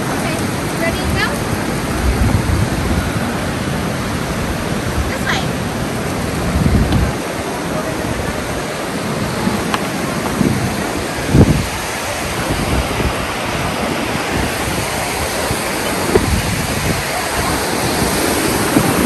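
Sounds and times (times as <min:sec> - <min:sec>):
waterfall rushing: 0:00.0 - 0:19.0
low bumps on microphone: 0:15.9 - 0:16.8.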